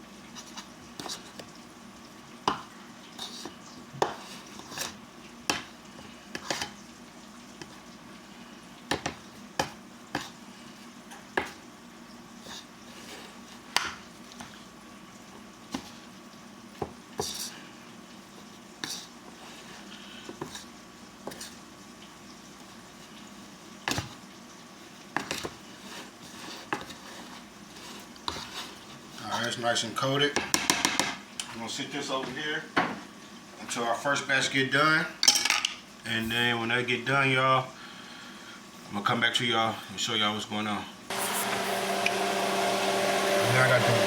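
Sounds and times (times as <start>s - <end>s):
food knocking against pot: 30.4s - 31.2s
oil sizzling: 41.1s - 44.0s.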